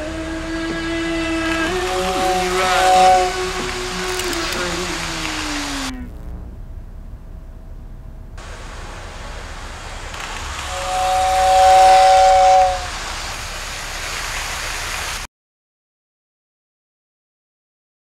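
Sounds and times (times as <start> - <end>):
train rushing: 0.0 - 6.0, 8.4 - 15.3
two-note train whistle: 0.0 - 6.1, 10.6 - 13.0.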